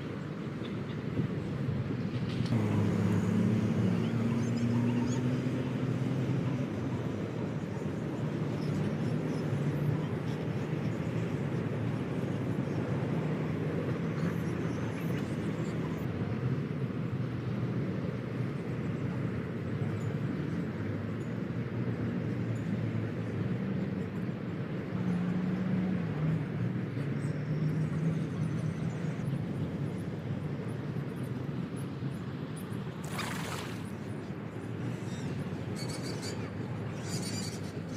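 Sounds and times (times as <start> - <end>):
outdoor background noise: 0.0 - 37.9
engine droning: 2.2 - 8.0, 27.6 - 37.9
low mechanical drone: 2.4 - 7.9.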